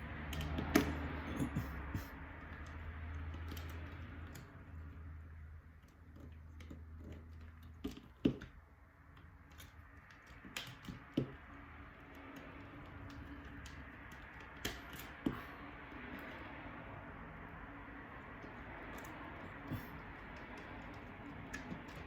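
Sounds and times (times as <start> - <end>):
small parts clicking and tapping: 0.0 - 22.0.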